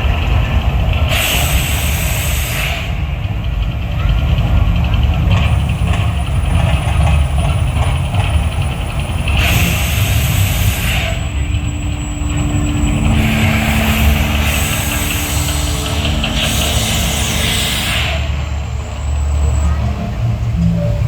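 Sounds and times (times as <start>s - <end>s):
deep rumble: 0.0s - 21.0s
loud hissing bursts: 1.1s - 3.4s, 5.5s - 19.6s.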